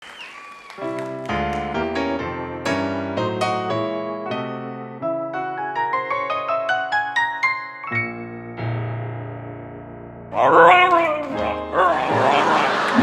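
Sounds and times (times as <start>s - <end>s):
piano chords and notes: 1.1s - 10.4s.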